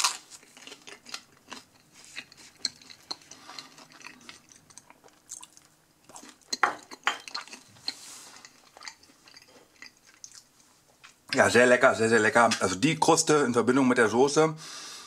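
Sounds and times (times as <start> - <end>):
chewing pizza crust: 0.0 - 11.4.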